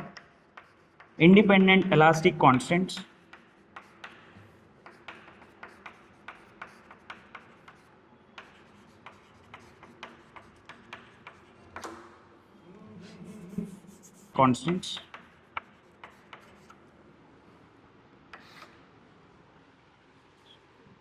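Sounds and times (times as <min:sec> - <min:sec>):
pen tapping and clicking on board: 0:00.0 - 0:12.2, 0:14.6 - 0:16.8.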